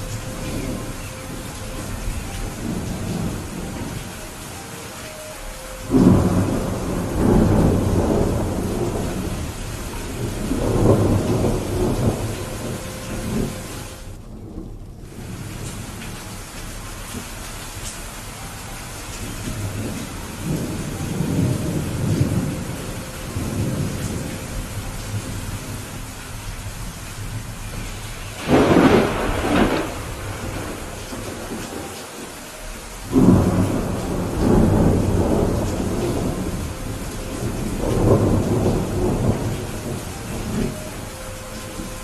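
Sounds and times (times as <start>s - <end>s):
rolling thunder rumbles: 0.0s - 42.0s
steady rain: 0.0s - 42.0s
loud thunderclap: 5.9s - 16.1s, 27.3s - 31.9s, 33.1s - 40.8s.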